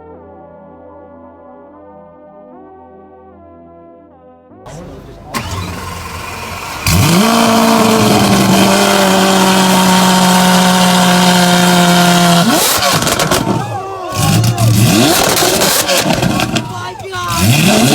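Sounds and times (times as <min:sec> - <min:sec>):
car engine starting and revving: 0:04.7 - 0:17.9.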